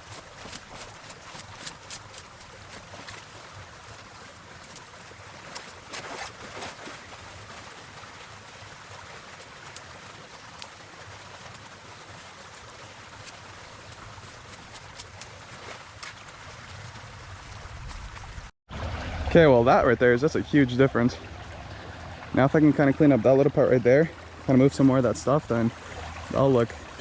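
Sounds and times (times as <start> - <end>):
brush rustling: 0.0 - 3.4, 13.1 - 18.5
creek water flowing: 0.0 - 27.0.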